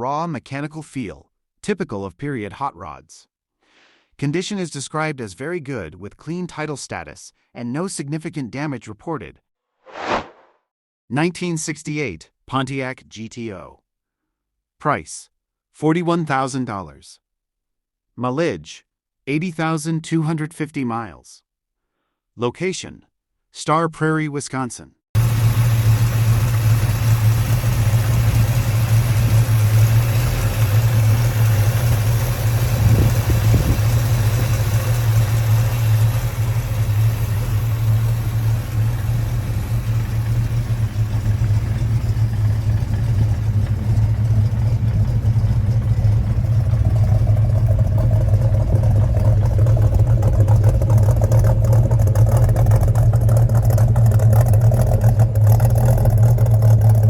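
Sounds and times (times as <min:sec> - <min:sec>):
engine running: 0:25.2 - 0:57.0.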